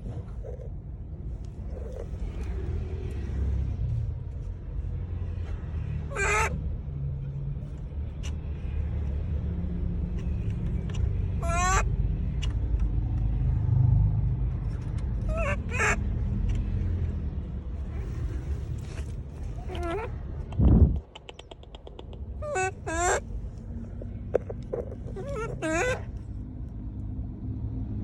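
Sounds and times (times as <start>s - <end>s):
steady low rumble: 0.0s - 28.0s
monkey high-pitched calls: 6.1s - 6.6s, 11.3s - 11.9s, 15.3s - 16.7s, 19.5s - 20.2s, 21.0s - 23.3s, 24.0s - 26.2s.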